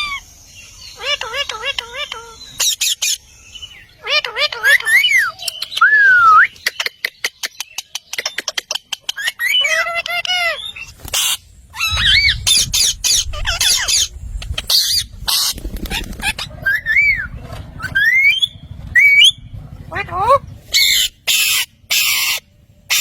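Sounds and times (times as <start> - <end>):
parrot squawks: 0.9 - 3.2, 9.1 - 23.0.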